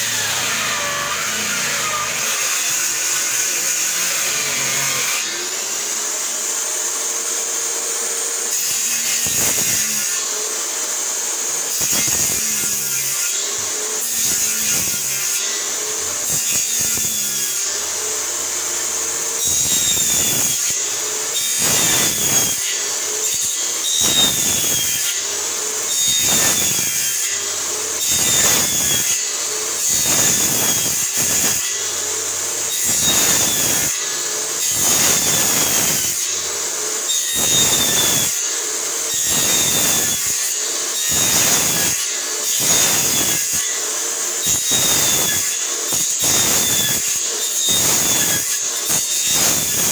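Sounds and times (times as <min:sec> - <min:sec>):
power saw cutting wood: 0:00.0 - 0:49.9.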